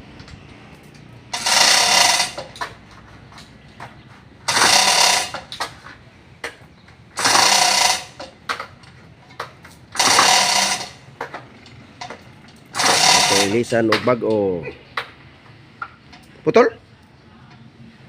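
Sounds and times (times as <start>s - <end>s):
impact wrench running: 1.4s - 2.6s, 4.5s - 5.6s, 7.2s - 8.4s, 10.0s - 11.1s, 12.7s - 13.8s.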